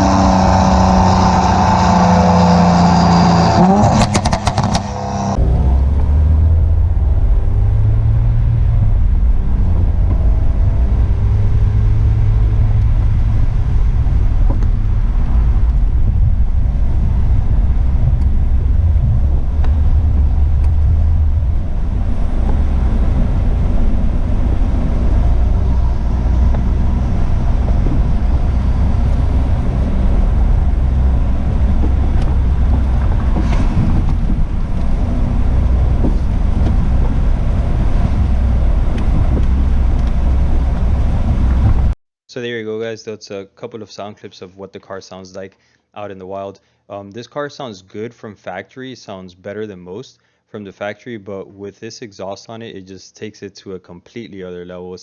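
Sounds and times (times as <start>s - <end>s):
car exhaust drone: 0.0s - 42.0s.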